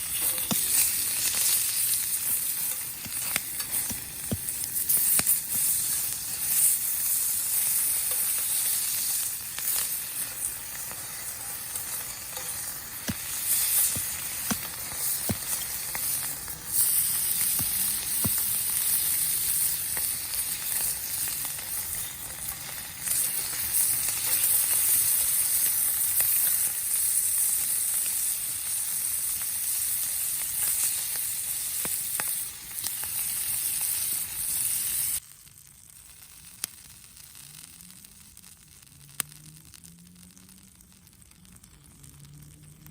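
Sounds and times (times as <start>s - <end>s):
food sizzling in a pan: 0.0s - 42.9s.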